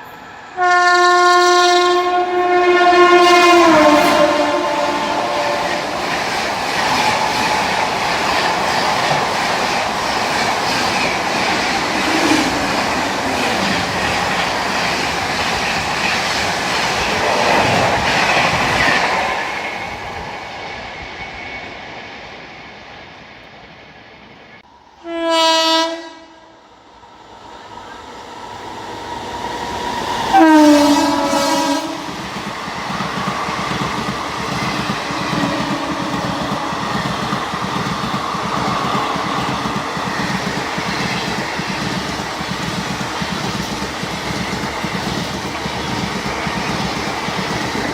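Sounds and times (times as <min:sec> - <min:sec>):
train passing at speed: 0:00.0 - 0:47.9
locomotive horn blast: 0:00.6 - 0:06.0, 0:25.0 - 0:26.6, 0:30.3 - 0:32.1.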